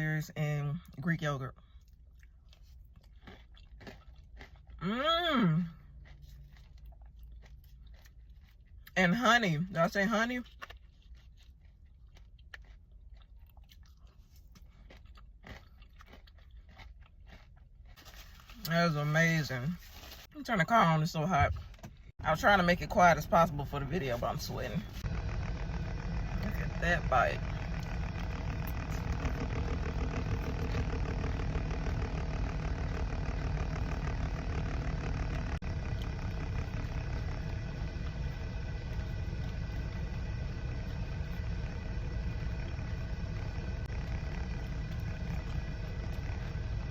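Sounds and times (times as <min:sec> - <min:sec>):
person chewing crunchy food: 0:01.6 - 0:09.0, 0:10.1 - 0:18.8, 0:26.2 - 0:46.9
car engine idling inside cabin: 0:20.8 - 0:46.9.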